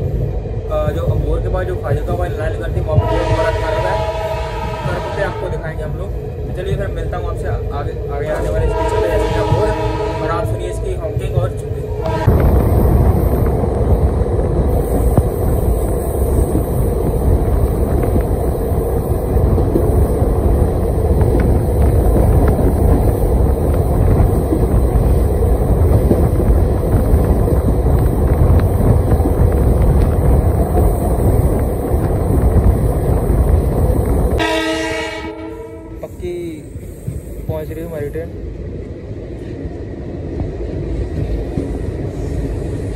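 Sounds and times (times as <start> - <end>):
train wheels on rails: 0.0 - 42.9
wind rushing on microphone: 0.0 - 42.9
train horn: 2.9 - 5.6, 8.4 - 10.9, 12.0 - 12.6, 34.4 - 36.2.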